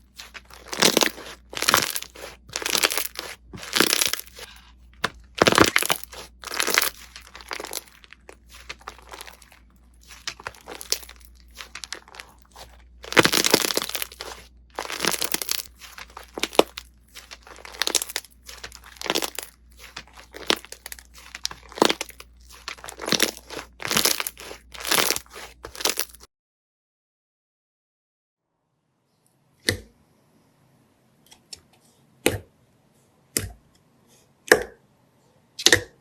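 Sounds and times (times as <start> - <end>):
slime crackling and crunching: 0.0 - 26.3.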